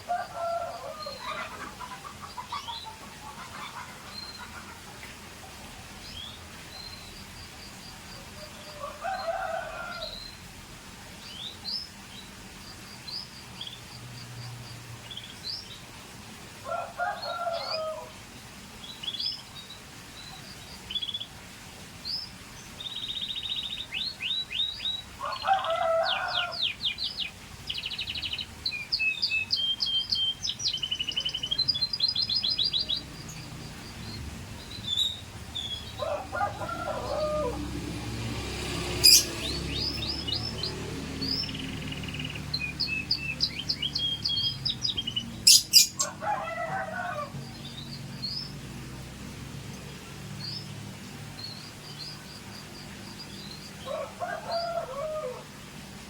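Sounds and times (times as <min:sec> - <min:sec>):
canary chirping and singing: 0:27.9 - 0:46.7.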